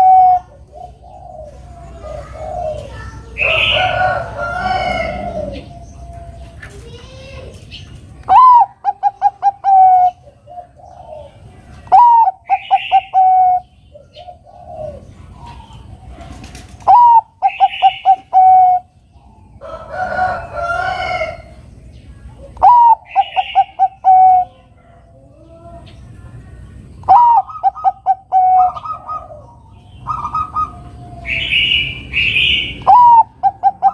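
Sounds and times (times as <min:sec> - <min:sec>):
rough bird call: 0:00.0 - 0:06.8
dove cooing song: 0:00.0 - 0:33.9.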